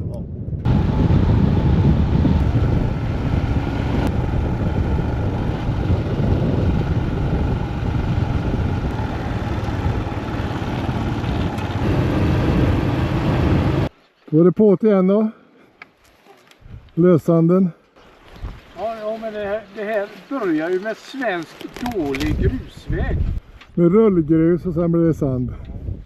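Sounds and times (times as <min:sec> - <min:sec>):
motorcycle riding rumble: 0:00.5 - 0:13.9.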